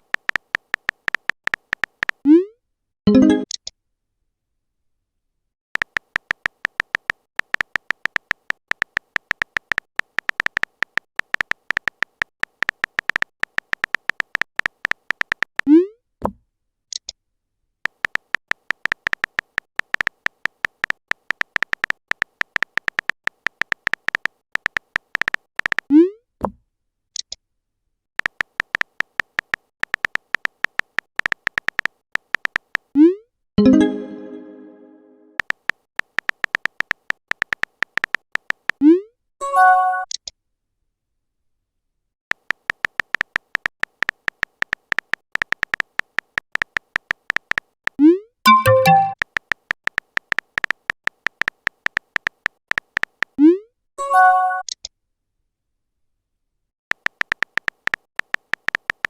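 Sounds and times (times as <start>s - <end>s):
rapid electronic typing clicks: 0.0s - 2.2s, 5.8s - 15.7s, 17.8s - 25.9s, 28.2s - 32.9s, 35.4s - 38.8s, 42.3s - 53.4s, 56.9s - 59.0s.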